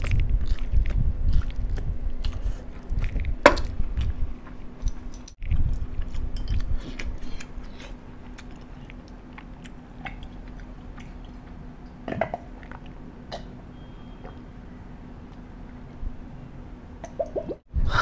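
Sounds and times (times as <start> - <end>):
chewing and crunching food: 0.0 - 13.1.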